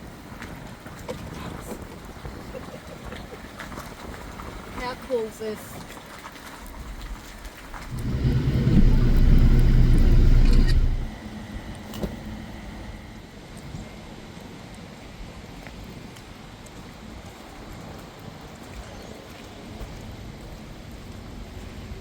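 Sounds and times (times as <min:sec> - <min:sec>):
car engine rumble driving past: 0:07.8 - 0:11.1.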